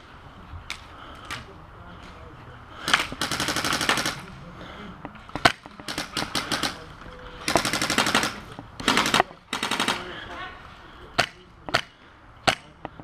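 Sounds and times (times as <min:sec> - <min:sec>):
airsoft rifle bursts: 0:02.8 - 0:04.3, 0:05.3 - 0:10.2.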